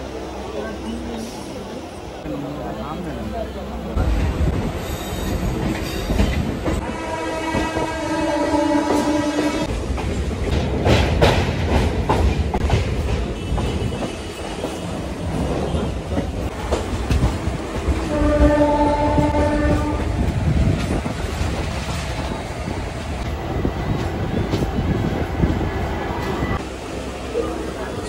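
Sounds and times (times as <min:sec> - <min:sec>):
train rumble and rail clatter: 0:00.0 - 0:28.0
train horn: 0:06.8 - 0:09.7, 0:18.0 - 0:20.2.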